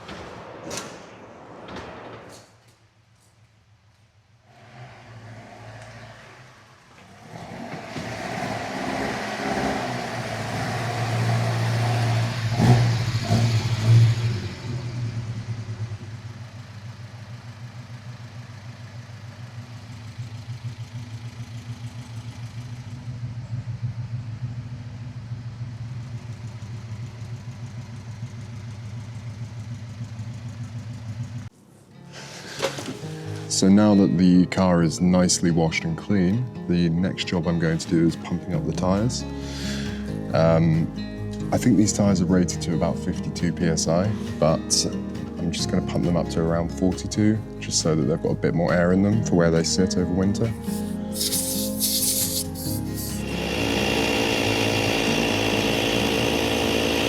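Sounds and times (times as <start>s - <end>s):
car engine revving and idling: 4.5s - 31.5s.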